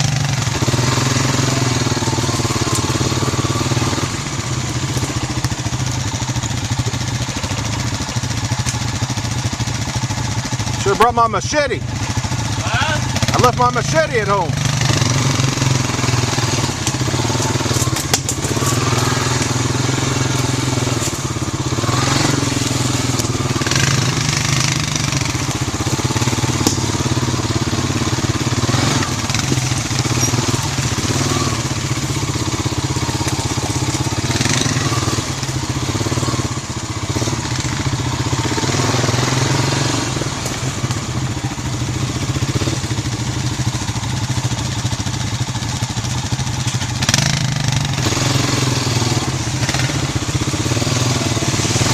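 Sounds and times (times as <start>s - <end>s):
quad engine running: 0.0s - 51.9s
sharp snaps and scrapes: 16.8s - 19.6s.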